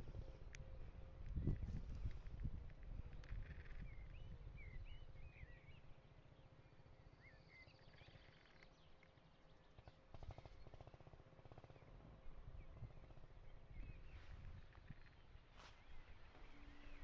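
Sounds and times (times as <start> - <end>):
low wind rumble on microphone: 0.0 - 8.4, 11.6 - 17.0
faint bird chirps: 3.0 - 10.8, 13.5 - 17.0.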